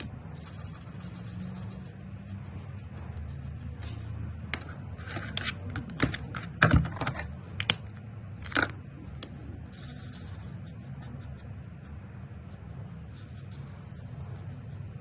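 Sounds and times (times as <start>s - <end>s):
marker scratching on paper: 0.0s - 5.4s, 9.6s - 15.0s
marker clicks and knocks: 4.4s - 9.3s.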